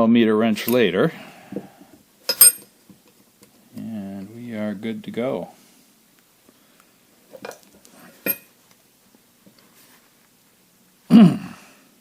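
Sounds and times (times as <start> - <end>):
metal tools knocking: 2.3 - 2.6
ringing metallic clink: 2.3 - 2.7.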